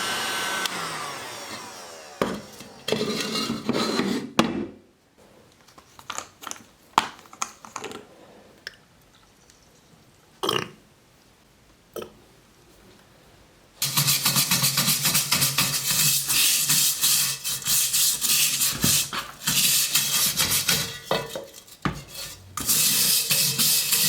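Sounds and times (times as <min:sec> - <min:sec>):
power tool whirring down: 0:00.0 - 0:03.0
tools scraping and clattering: 0:02.3 - 0:04.4, 0:13.8 - 0:24.0
short rasp: 0:13.8 - 0:24.0.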